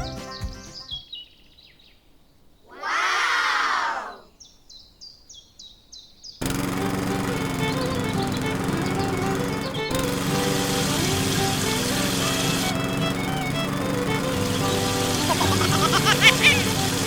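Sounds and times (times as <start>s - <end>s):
music: 0.0s - 1.0s, 6.7s - 17.0s
high falling chirps: 7.5s - 17.0s.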